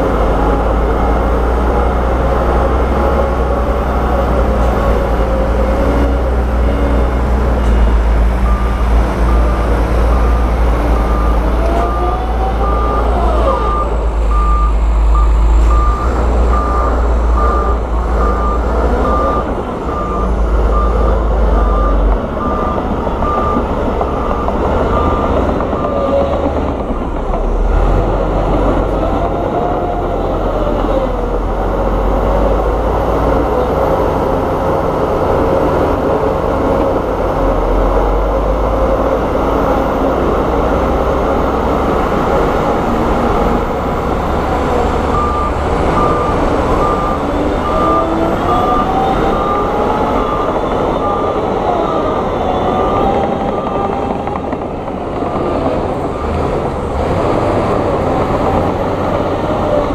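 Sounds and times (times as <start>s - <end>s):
diesel engine rumble: 0.0s - 59.9s
reversing alarm beeping: 4.2s - 26.8s, 41.5s - 57.4s.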